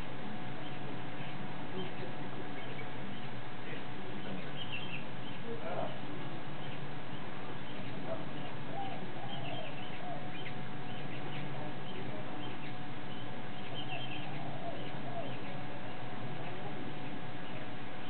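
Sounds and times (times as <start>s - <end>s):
small birds chirping: 0.0s - 18.0s
steady background hum: 0.0s - 18.0s
lower warbling bird calls: 0.6s - 6.0s, 6.6s - 17.7s.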